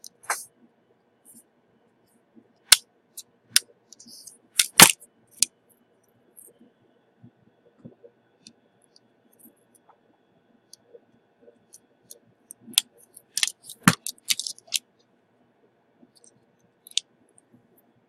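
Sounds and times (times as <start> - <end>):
clicks of small hard objects: 13.3 - 14.8.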